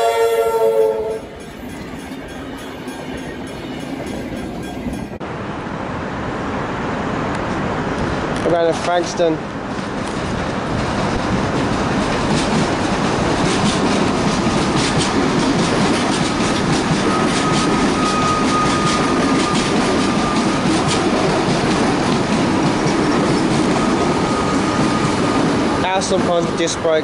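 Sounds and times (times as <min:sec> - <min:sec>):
electric train rumbling past: 0:00.0 - 0:27.0
wheels clicking over rail joints: 0:09.7 - 0:24.1
high squeal: 0:17.0 - 0:21.0, 0:23.6 - 0:25.4.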